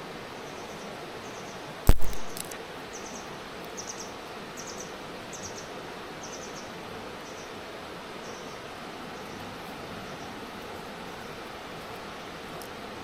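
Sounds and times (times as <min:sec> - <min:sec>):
steady background hiss: 0:00.0 - 0:13.0
sharp knock: 0:01.9 - 0:02.4.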